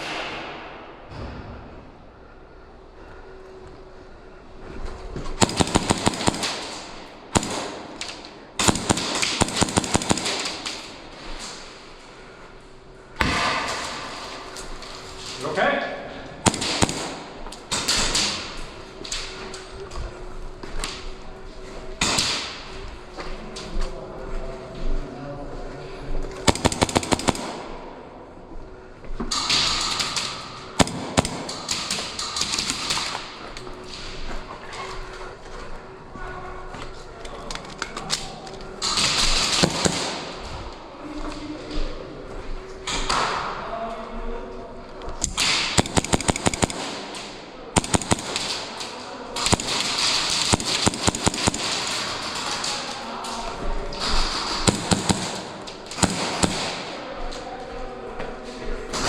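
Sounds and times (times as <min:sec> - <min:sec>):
airsoft guns firing: 0:05.4 - 0:11.9, 0:16.4 - 0:19.6, 0:22.0 - 0:22.8, 0:26.4 - 0:28.2, 0:29.3 - 0:35.0, 0:38.8 - 0:40.8, 0:45.2 - 0:53.4, 0:54.0 - 0:57.3.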